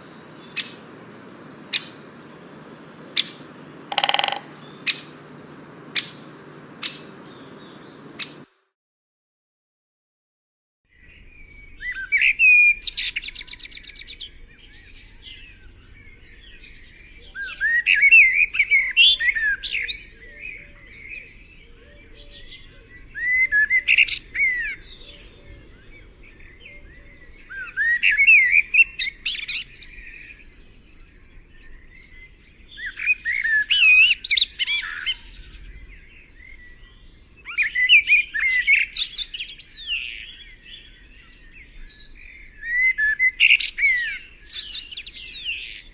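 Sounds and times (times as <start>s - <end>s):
songbird warbling: 0.0s - 8.4s.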